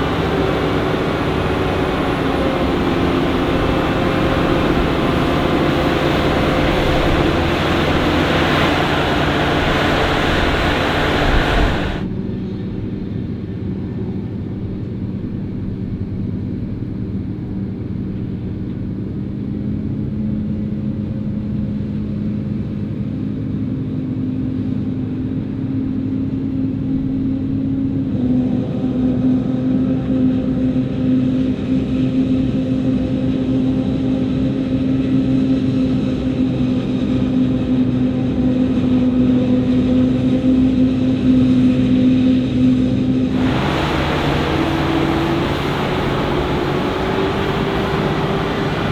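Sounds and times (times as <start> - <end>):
engine humming: 0.0 - 12.1, 43.3 - 48.9
heavy farm machinery running: 0.0 - 12.1, 43.3 - 48.9.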